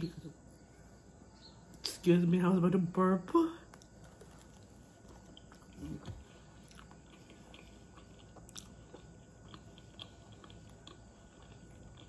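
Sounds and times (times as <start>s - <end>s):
person chewing food: 3.7s - 12.0s.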